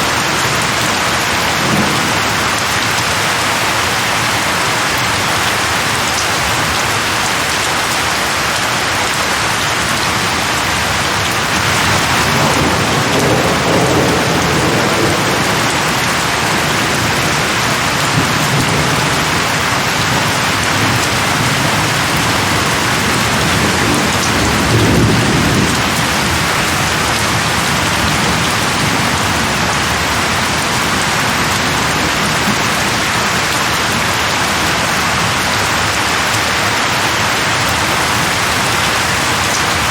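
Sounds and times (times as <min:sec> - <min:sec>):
heavy rain falling: 0:00.0 - 0:39.9
distant thunder rumbling: 0:11.6 - 0:33.2.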